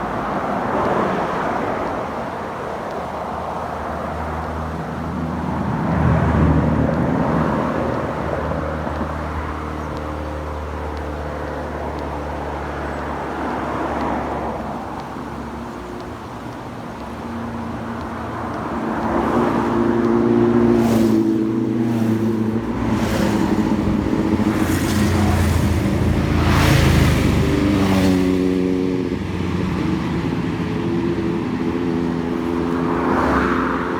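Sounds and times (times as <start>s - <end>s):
motorcycles passing at speed: 0.0s - 33.9s.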